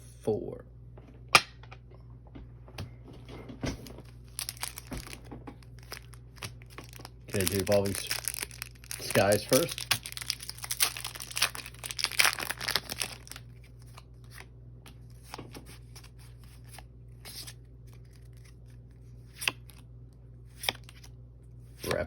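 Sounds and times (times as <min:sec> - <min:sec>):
foil pack crinkling: 0:04.0 - 0:14.4.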